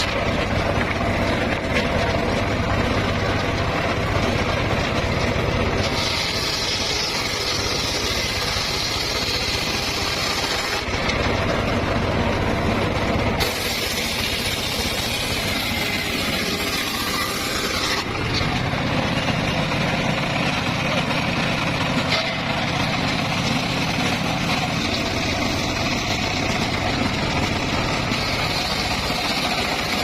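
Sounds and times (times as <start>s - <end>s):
engine rumble: 0.0s - 30.0s
saw blade hissing through log: 5.8s - 10.9s, 13.4s - 18.2s, 28.1s - 30.0s.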